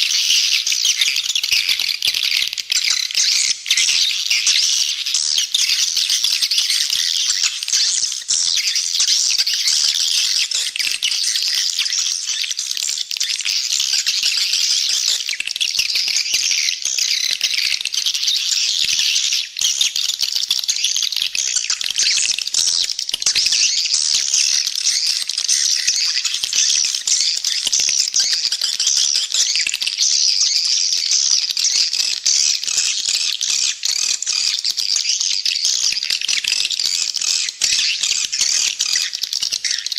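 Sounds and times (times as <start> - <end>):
swiftlets chirping and chittering: 21.2 - 39.9.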